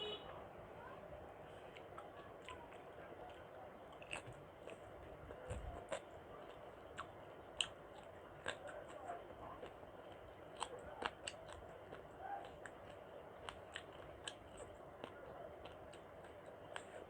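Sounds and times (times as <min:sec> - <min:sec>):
person chewing with wet smacks: 0:01.5 - 0:17.0.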